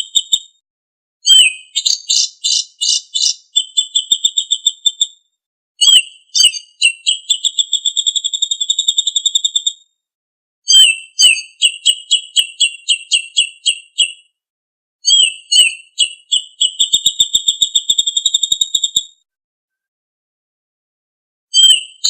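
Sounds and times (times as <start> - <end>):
songbird singing trills: 1.2 - 5.1, 5.8 - 9.8, 10.7 - 14.2.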